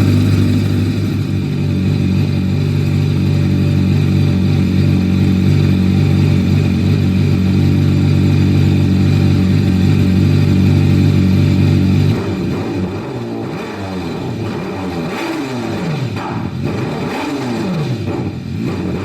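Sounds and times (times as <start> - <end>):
motorcycle engine idling: 0.0 - 16.7.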